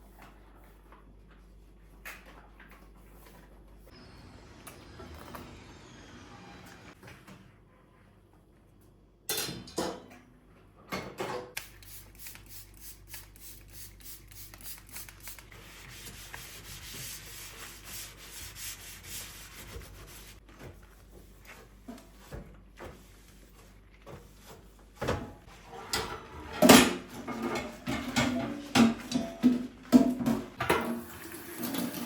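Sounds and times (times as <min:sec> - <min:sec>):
hand scrubbing a surface: 0:15.5 - 0:25.0.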